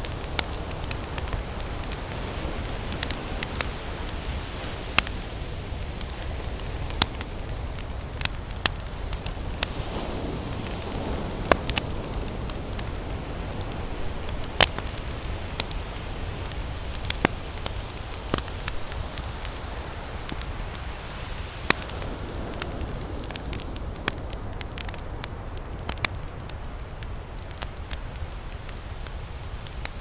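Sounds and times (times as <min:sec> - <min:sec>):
campfire crackling with pops: 0:00.0 - 0:30.0.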